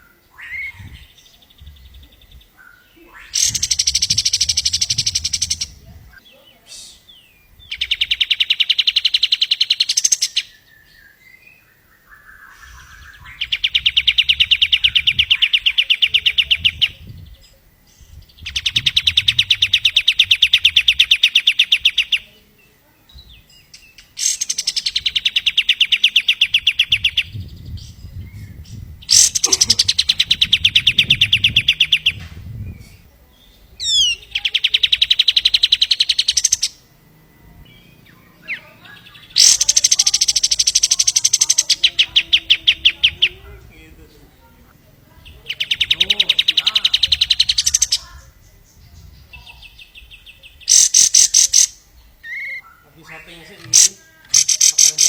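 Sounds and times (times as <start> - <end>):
songbird trilling: 0.0 - 55.0.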